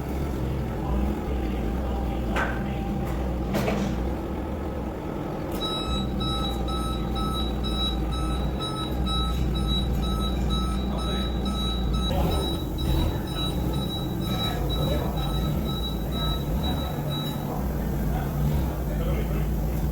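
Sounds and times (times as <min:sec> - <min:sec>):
engine rumbling: 0:00.0 - 0:19.9
vehicle backup alarm beeping: 0:05.6 - 0:18.6.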